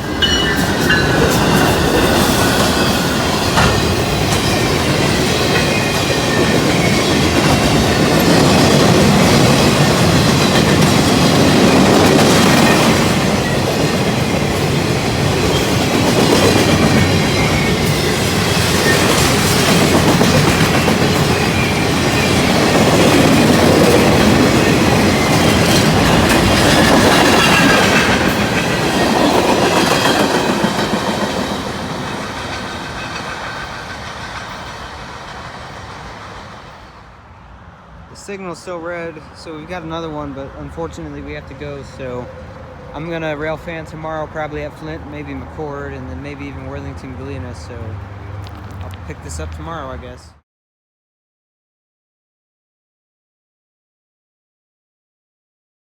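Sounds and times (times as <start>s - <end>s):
train wheels clattering on track: 0.0s - 37.0s.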